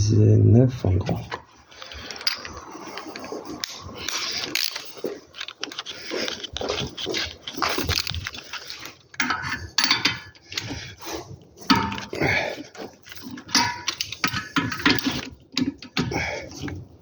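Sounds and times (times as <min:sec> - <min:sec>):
metal hand tools clinking: 0:07.0 - 0:10.9, 0:11.6 - 0:16.8.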